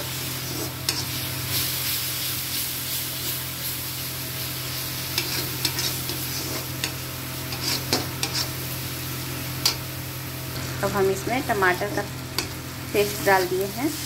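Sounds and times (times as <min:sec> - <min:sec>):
masala sizzling in oil: 0:00.0 - 0:14.0
metal spatula scraping pan: 0:00.4 - 0:01.2, 0:05.2 - 0:08.6.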